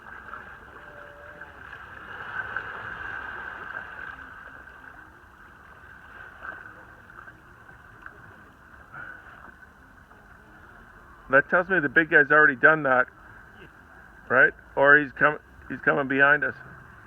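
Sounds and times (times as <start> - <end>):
water splashing and rushing: 0.0 - 9.8.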